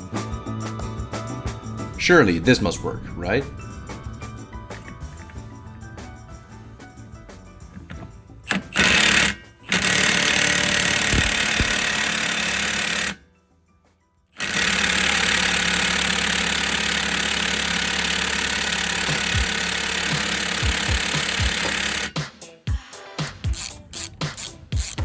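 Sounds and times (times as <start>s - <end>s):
impact driver hammering: 8.5s - 13.1s, 14.4s - 22.2s.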